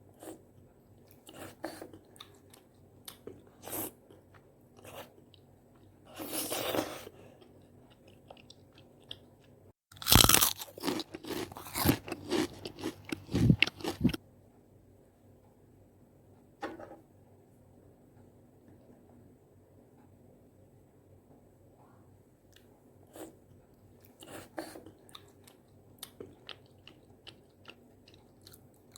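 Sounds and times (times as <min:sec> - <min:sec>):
chewing and crunching food: 0:00.2 - 0:14.2, 0:22.5 - 0:28.9.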